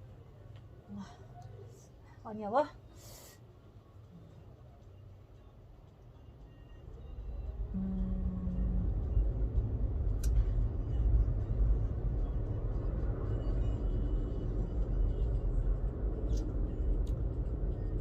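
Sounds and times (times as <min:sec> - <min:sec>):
low rumbling noise: 0:06.8 - 0:18.0.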